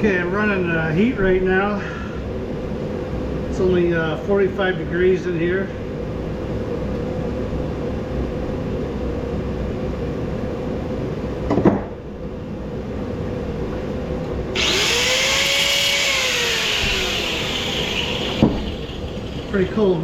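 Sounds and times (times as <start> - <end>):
space heater humming: 0.0 - 20.0
power tool cutting: 14.6 - 19.6
sharp knock: 18.4 - 18.7.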